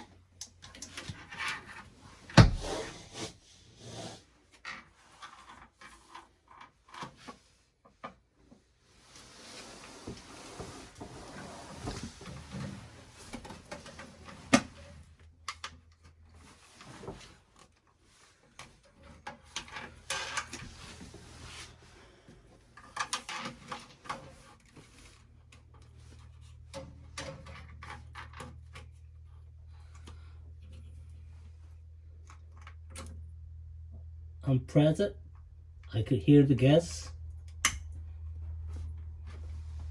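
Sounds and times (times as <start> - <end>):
faint low hum: 25.5 - 39.9.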